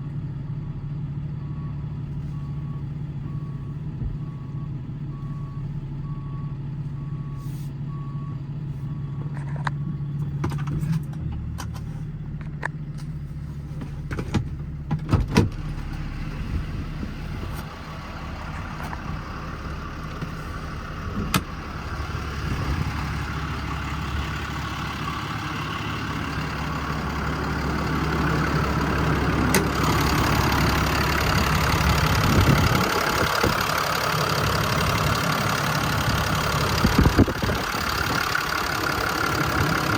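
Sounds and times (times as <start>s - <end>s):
diesel truck engine running: 0.0s - 39.9s
road noise: 0.0s - 39.9s
backup alarm beeping: 22.3s - 26.9s
sharp clicks and knocks: 29.5s - 29.8s.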